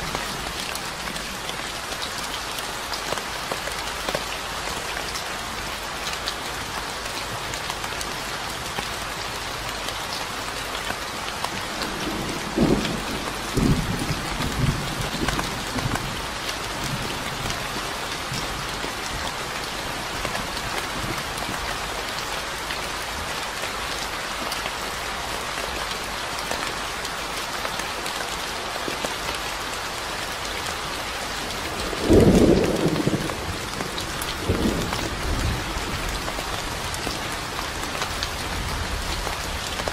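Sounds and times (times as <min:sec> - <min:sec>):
rain pattering: 0:00.0 - 0:39.9
thunder rumbling: 0:11.7 - 0:16.0, 0:31.7 - 0:36.3.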